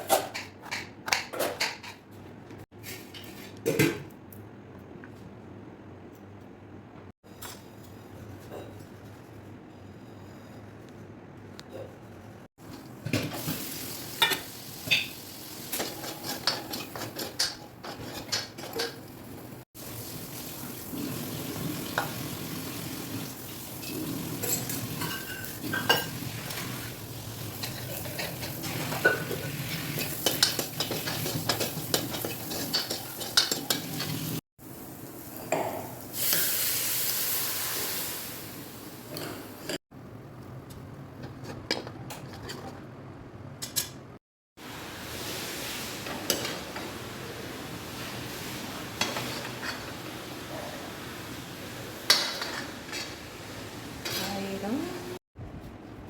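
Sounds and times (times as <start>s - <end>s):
metal utensils scraping a pan: 15.7s - 19.1s, 23.8s - 26.7s, 27.5s - 34.4s, 48.4s - 50.0s, 52.1s - 53.2s
light sizzle: 18.3s - 39.1s, 44.6s - 55.2s.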